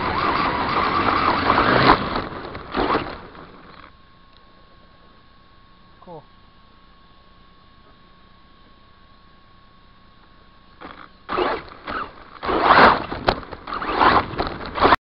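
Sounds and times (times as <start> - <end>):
rc truck scraping and rattling: 0.0 - 3.9, 10.8 - 15.0
faint steady hum: 0.0 - 15.0.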